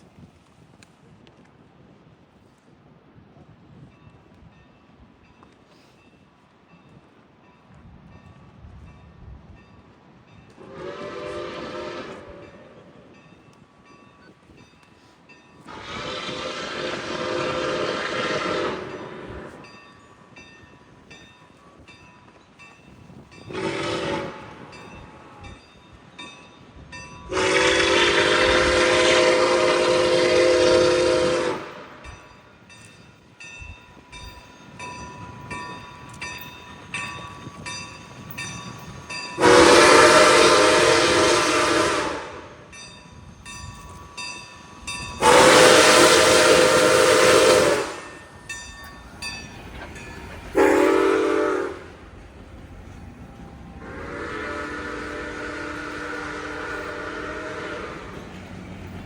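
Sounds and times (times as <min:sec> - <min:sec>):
locomotive air horn blasts: 0:10.6 - 0:12.9, 0:15.7 - 0:19.6, 0:23.5 - 0:25.4, 0:27.3 - 0:32.1, 0:39.4 - 0:42.7, 0:45.2 - 0:48.2, 0:50.5 - 0:52.1, 0:53.8 - 0:58.3.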